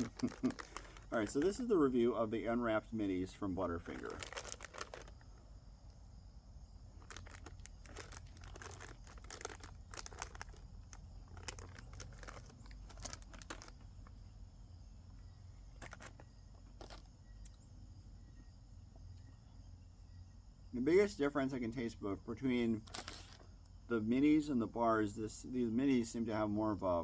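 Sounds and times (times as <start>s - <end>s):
plastic bag crinkling: 0.0s - 1.7s, 3.8s - 5.3s, 7.0s - 14.2s, 15.7s - 17.1s, 22.8s - 23.4s.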